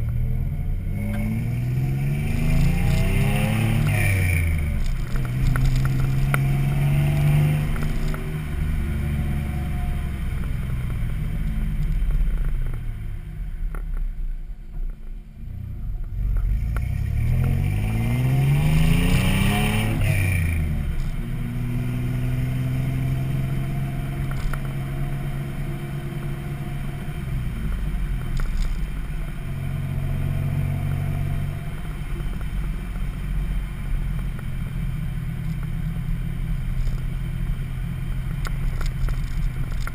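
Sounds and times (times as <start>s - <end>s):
engine exhaust revving: 0.0s - 13.2s, 15.4s - 32.9s.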